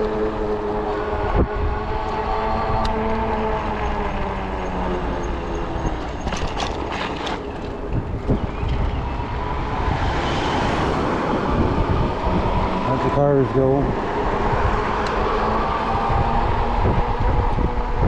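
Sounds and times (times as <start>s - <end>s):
electric motor whine: 0.0s - 6.2s
passing traffic: 0.0s - 18.0s
wind noise: 0.0s - 18.0s.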